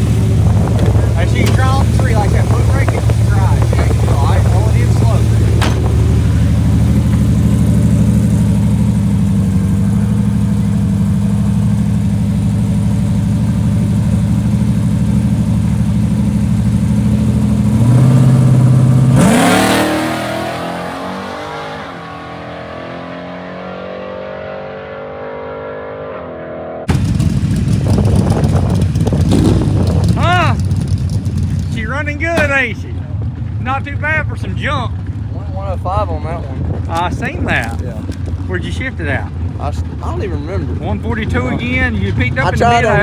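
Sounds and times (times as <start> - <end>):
loud rush: 0.0 - 12.9, 26.9 - 32.9
drag racing engine running hard: 0.0 - 23.6, 26.9 - 43.0.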